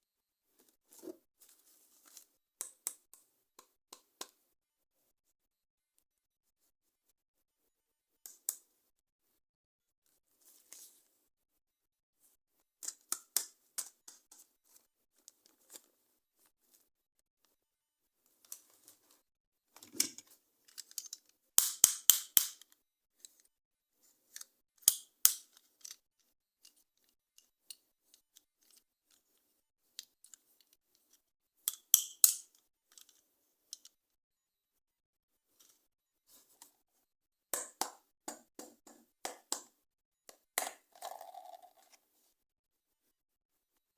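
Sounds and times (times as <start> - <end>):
toys and packaging clicking: 19.8 - 23.5, 24.3 - 26.0, 29.9 - 34.0.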